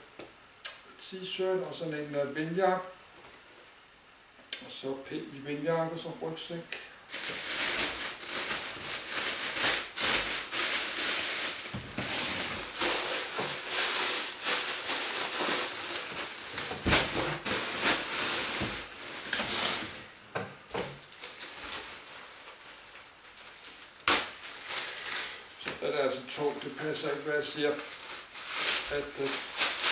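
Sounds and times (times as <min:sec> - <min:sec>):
fabric rustling and crinkling: 0:07.1 - 0:20.2, 0:20.8 - 0:25.8, 0:26.5 - 0:29.9.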